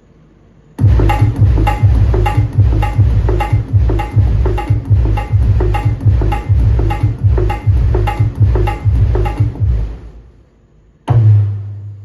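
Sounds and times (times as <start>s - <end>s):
loud rhythmic music with bass beats: 0.8s - 10.2s.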